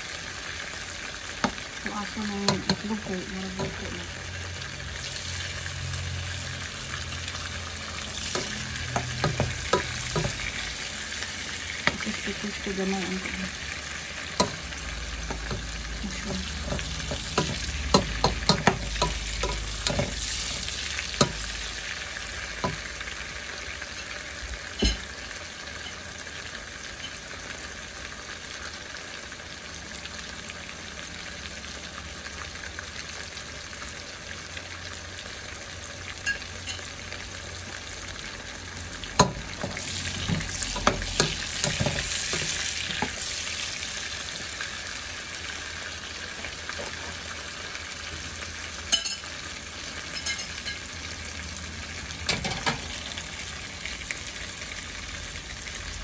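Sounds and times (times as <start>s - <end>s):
vegetables sizzling in a pot: 0.0s - 56.0s
tongs clacking against metal pot: 48.9s - 49.3s.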